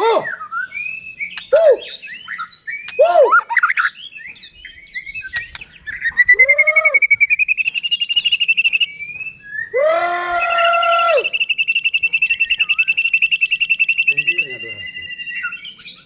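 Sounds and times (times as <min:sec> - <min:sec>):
bird singing whistles and chirps: 0:00.2 - 0:16.0
rapid bird trill: 0:07.2 - 0:09.1, 0:10.5 - 0:16.0.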